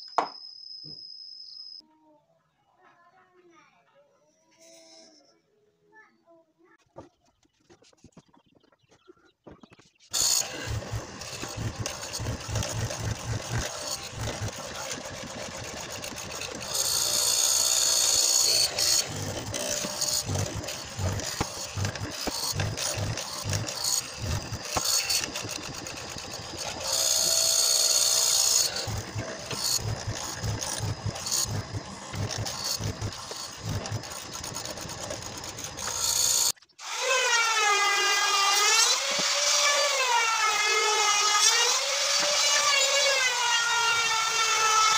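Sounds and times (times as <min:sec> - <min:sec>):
power drill running: 0:10.1 - 0:44.9.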